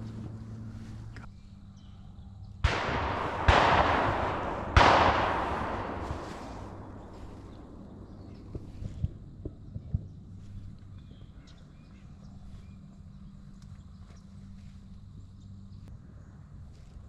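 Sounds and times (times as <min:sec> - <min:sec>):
shotgun shots with echo: 0:02.6 - 0:09.0.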